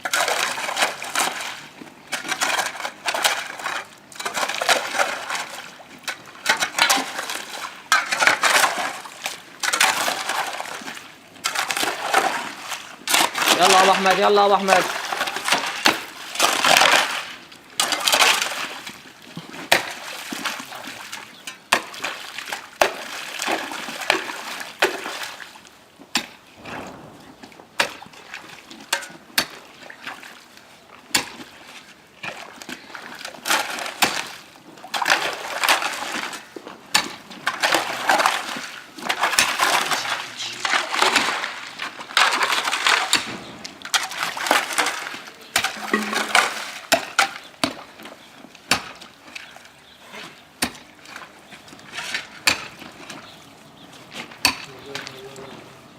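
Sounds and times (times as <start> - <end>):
water splashing: 0.0 - 55.9
tools knocking and scraping on pipe: 45.6 - 47.8.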